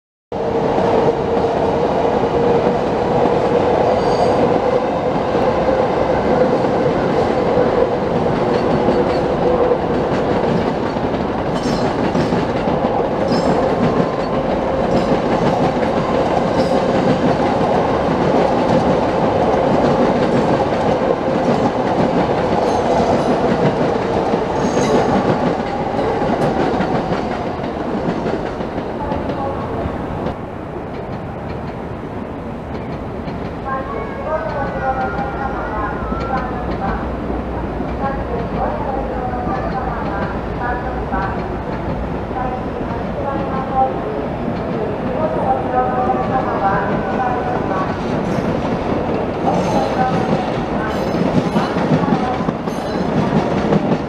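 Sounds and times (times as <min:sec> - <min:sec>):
train wheels rumbling on rails: 0:00.4 - 0:54.0
clickety-clack over rail joints: 0:08.1 - 0:29.5, 0:36.2 - 0:37.1, 0:46.1 - 0:54.0.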